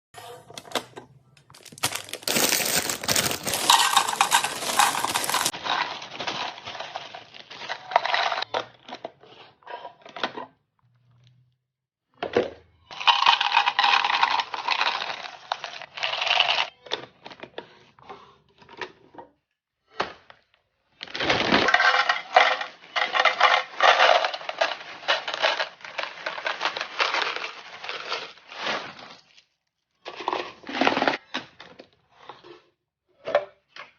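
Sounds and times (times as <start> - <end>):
small hard items clattering: 1.4 - 8.5, 12.9 - 16.7, 21.1 - 29.0.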